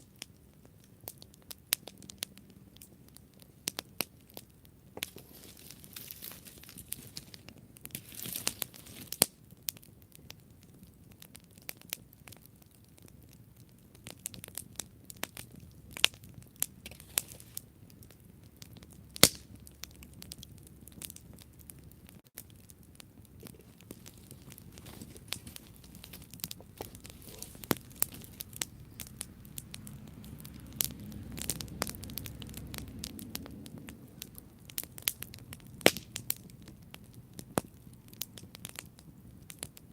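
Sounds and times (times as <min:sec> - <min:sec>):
campfire crackling and popping: 0:00.0 - 0:39.9
low rush of flame: 0:13.6 - 0:39.7.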